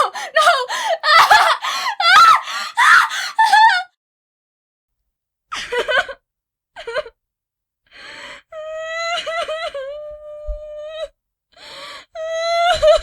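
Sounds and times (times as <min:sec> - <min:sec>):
woman wailing: 0:00.0 - 0:03.9
woman crying and sobbing: 0:00.0 - 0:04.0, 0:05.6 - 0:06.2, 0:06.8 - 0:07.2, 0:08.5 - 0:11.0, 0:12.0 - 0:13.0.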